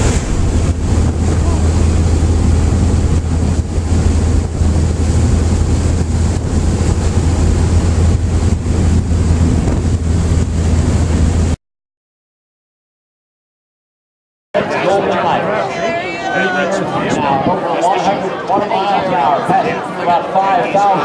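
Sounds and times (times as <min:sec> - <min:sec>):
propeller engines droning: 0:00.0 - 0:11.6, 0:14.6 - 0:21.0
wind noise: 0:00.0 - 0:11.6, 0:15.1 - 0:19.9.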